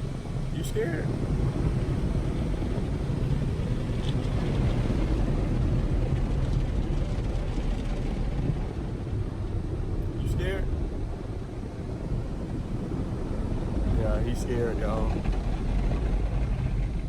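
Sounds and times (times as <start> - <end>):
car wash spray and machinery: 0.0 - 17.0.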